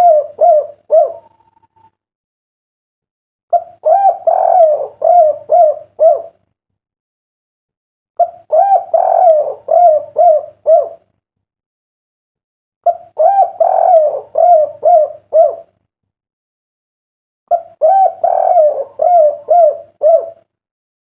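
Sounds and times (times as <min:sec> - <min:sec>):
dove cooing: 0:00.0 - 0:01.7, 0:03.5 - 0:06.4, 0:08.2 - 0:11.0, 0:12.9 - 0:15.8, 0:17.5 - 0:20.5.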